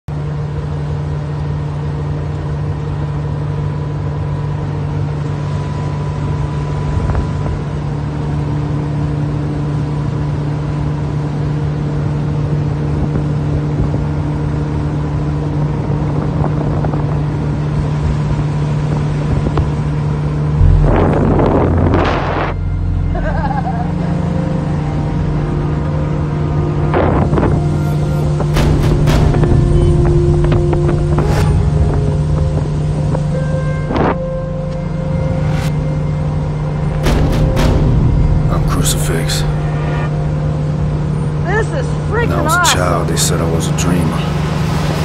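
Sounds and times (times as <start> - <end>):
powerboat engine drone: 0.1 - 45.0
rushing wind: 15.6 - 23.1.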